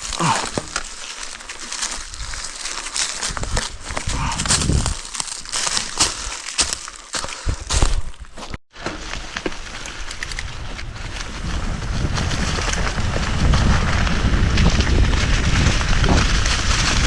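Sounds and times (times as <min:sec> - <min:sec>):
bike tyre and trail clicks: 0:00.0 - 0:17.0
wind rushing over microphone: 0:03.2 - 0:05.1, 0:09.9 - 0:17.0.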